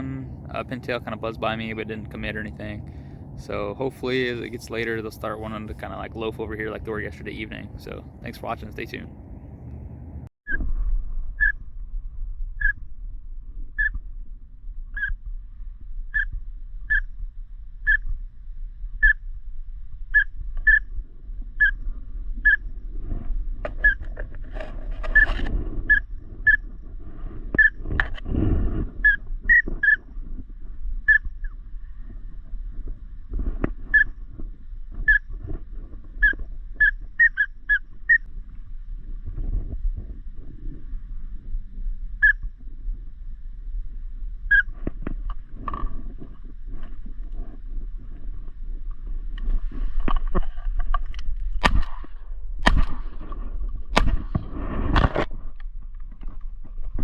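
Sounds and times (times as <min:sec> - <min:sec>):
low rumble: 0:00.0 - 0:17.5
high whistled peeps: 0:34.0 - 0:34.2.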